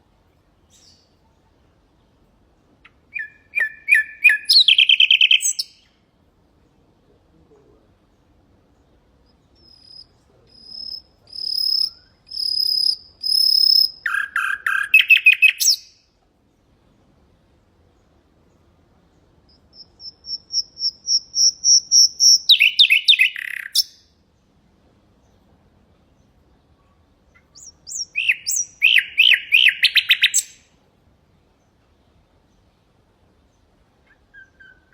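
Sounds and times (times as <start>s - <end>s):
faint background hiss: 0.0s - 34.9s
nightingale singing: 0.6s - 6.1s, 8.0s - 16.1s, 17.9s - 24.5s, 26.1s - 30.8s, 33.4s - 34.9s.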